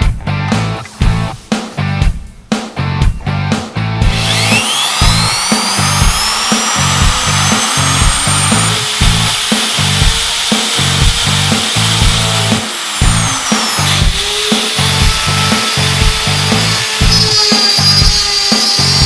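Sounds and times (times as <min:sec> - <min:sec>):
rock music with steady beat: 0:00.0 - 0:19.0
router motor whining: 0:04.1 - 0:19.0.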